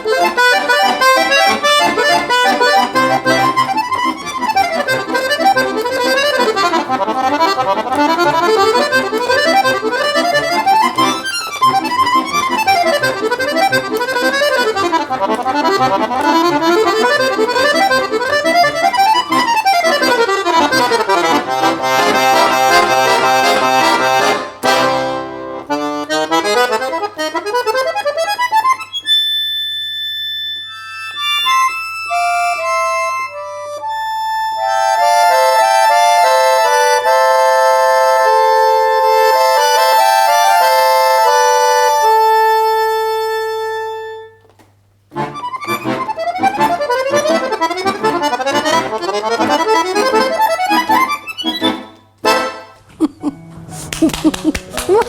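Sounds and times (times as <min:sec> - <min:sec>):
solo accordion playing: 0:00.0 - 0:55.0.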